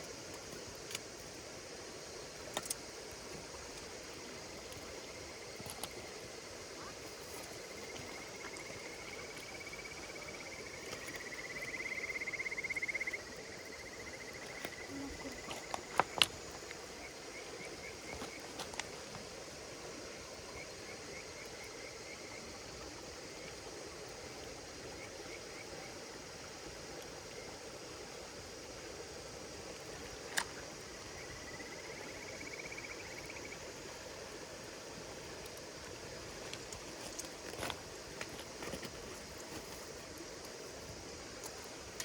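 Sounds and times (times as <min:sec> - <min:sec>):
insects chirring: 0:00.0 - 0:42.0
campfire crackling: 0:33.0 - 0:42.0.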